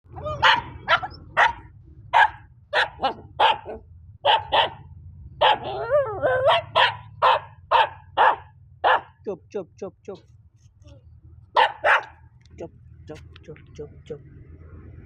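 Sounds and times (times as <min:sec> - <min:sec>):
dog wavering cry: 0:00.1 - 0:01.6, 0:05.4 - 0:09.1
dog barking: 0:00.2 - 0:09.2, 0:11.5 - 0:12.3.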